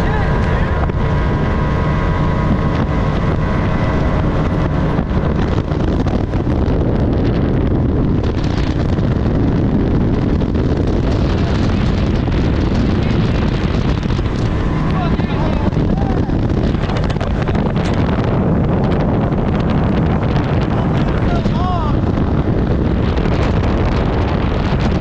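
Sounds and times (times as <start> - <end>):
boat hull noise: 0.0 - 25.0
outboard engine: 0.0 - 25.0
wind buffeting microphone: 0.0 - 25.0.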